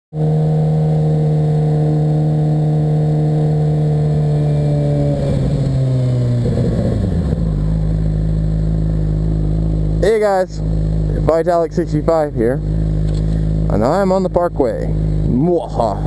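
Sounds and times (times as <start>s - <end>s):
motorcycle engine running: 0.2s - 16.0s.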